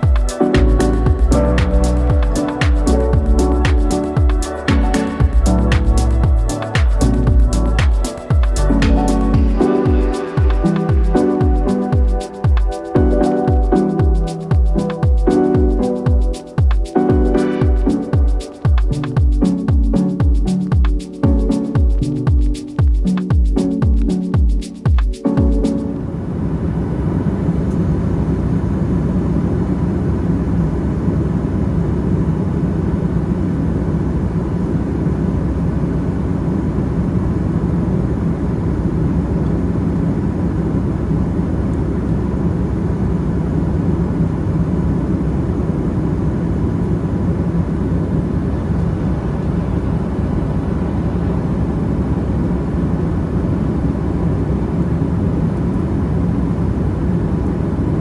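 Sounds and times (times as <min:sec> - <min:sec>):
faint steady hum: 0:00.0 - 0:58.0
aircraft cabin engine rumble: 0:26.0 - 0:58.0.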